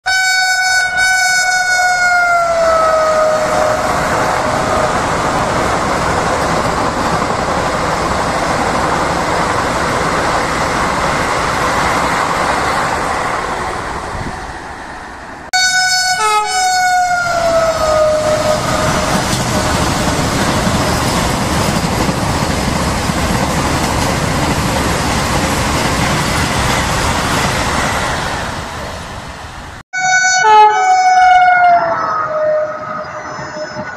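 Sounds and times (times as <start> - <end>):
train horn sliding down: 0.0 - 5.0, 15.5 - 19.7, 30.0 - 33.9
train rushing past: 0.6 - 30.2, 30.8 - 33.9.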